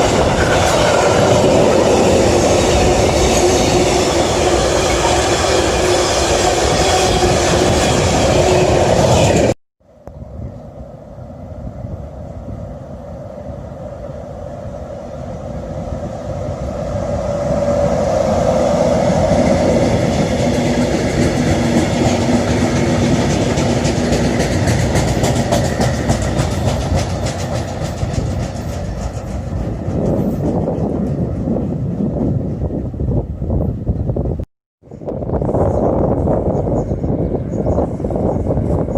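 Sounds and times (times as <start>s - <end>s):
train running on rails: 0.0s - 38.9s
train wheels clicking: 19.3s - 32.7s.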